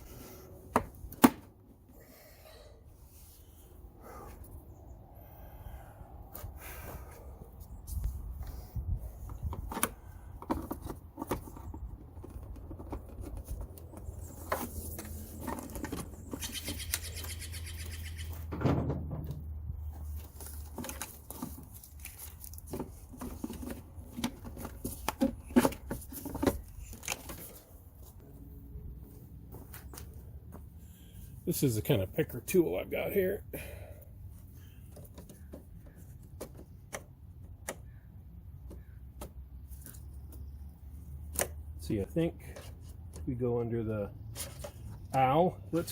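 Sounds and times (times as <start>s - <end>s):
plastic car parts clicking and rattling: 9.4s - 16.5s, 20.4s - 27.6s.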